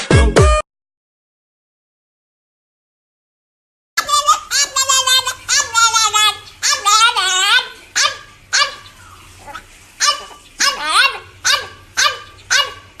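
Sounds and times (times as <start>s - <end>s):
dog barking: 4.1s - 13.0s.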